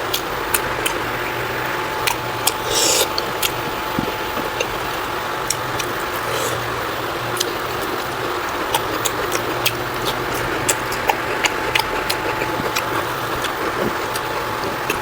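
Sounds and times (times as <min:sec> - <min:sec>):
steady hiss and low hum: 0:00.0 - 0:15.0
person chewing: 0:00.1 - 0:01.2, 0:02.0 - 0:15.0.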